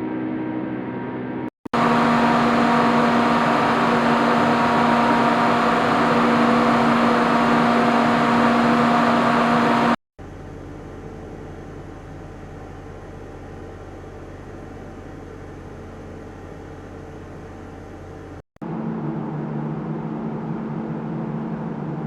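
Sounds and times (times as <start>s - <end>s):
quieter humming: 1.7s - 10.0s
machine whir with low hum: 1.7s - 22.0s.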